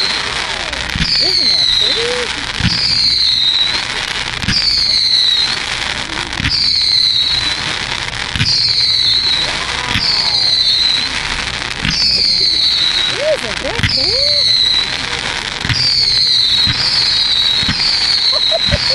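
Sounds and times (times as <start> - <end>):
falling firework whistle: 0.0 - 18.9
firework shells bursting: 0.0 - 18.9
fireworks crackling: 0.0 - 18.9.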